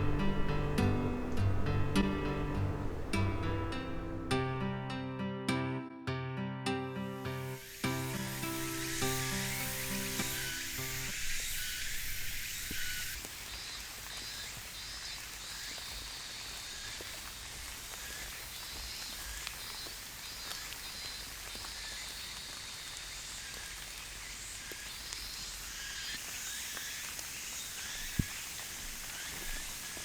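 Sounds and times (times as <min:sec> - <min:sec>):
steady hiss: 0:00.0 - 0:05.0, 0:07.0 - 0:30.0
background music: 0:00.0 - 0:11.2.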